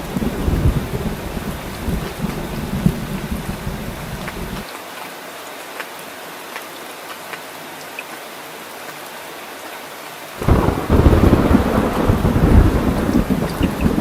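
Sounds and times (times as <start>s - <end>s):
thunderclap and rumble: 0.0s - 4.6s, 10.4s - 14.0s
rain falling: 0.0s - 14.0s.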